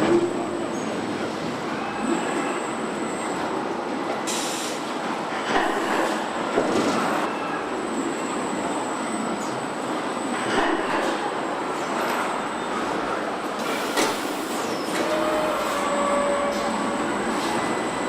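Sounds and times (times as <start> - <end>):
machine whine: 14.7 - 18.0.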